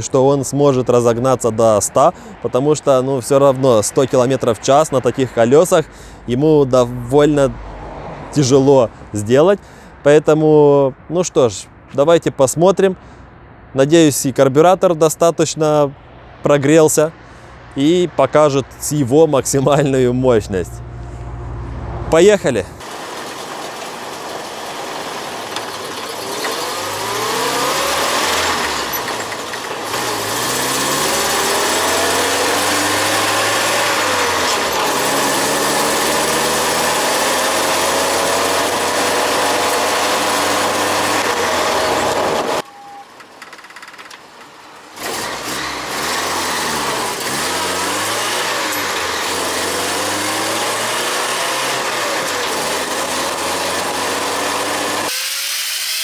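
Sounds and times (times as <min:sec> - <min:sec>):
wind and road noise: 0:00.0 - 0:55.1
engine accelerating: 0:20.7 - 0:43.0, 0:44.9 - 0:55.5.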